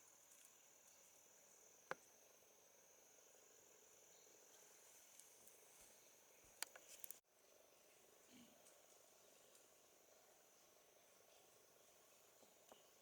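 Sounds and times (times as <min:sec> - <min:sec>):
insects chirring: 0:00.0 - 0:07.2.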